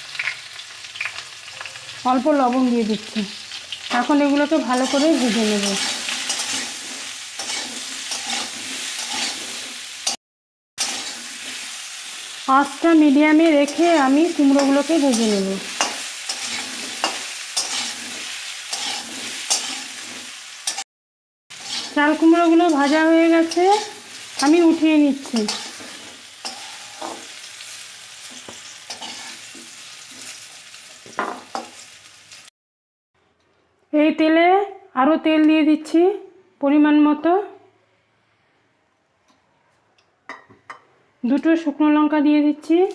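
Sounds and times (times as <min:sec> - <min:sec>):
vegetables sizzling in oil: 0:00.0 - 0:10.2, 0:10.8 - 0:20.9, 0:21.5 - 0:32.5
spatula scraping and knocking pan: 0:04.7 - 0:10.2, 0:14.6 - 0:20.8, 0:21.5 - 0:27.3.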